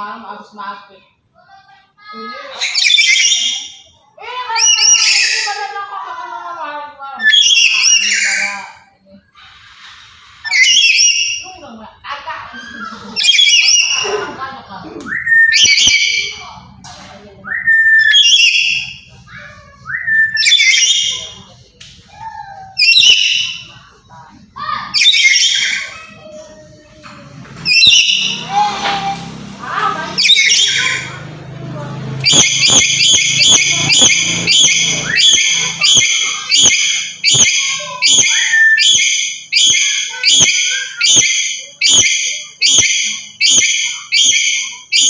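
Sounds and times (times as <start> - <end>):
parrot whistling screech calls: 2.6 - 3.8, 4.6 - 5.6, 7.2 - 8.6, 9.4 - 11.5, 12.7 - 14.1, 15.2 - 16.4, 17.5 - 19.1, 22.8 - 23.7, 27.6 - 29.2, 30.2 - 31.2, 32.2 - 45.0.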